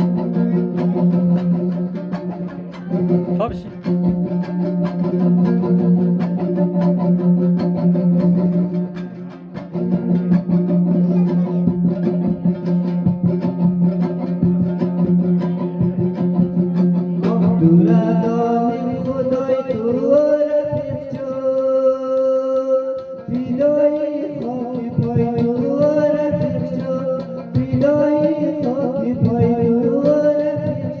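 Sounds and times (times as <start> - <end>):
plucked string instrument: 0.0 - 31.0
person singing: 17.1 - 31.0.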